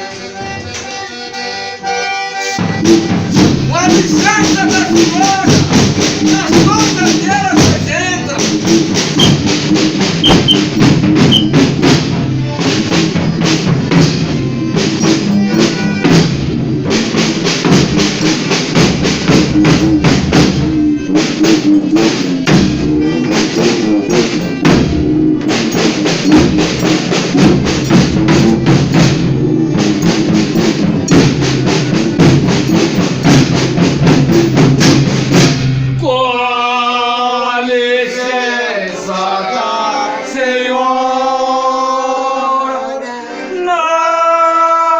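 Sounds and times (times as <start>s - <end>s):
drum and percussion beats: 0.0s - 36.0s
band playing: 0.0s - 44.8s
person singing: 36.0s - 44.9s.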